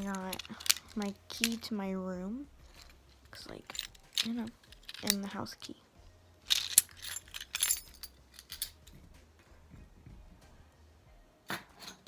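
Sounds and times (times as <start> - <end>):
keys jangling: 0.0 - 1.7, 2.7 - 5.3, 6.5 - 8.9.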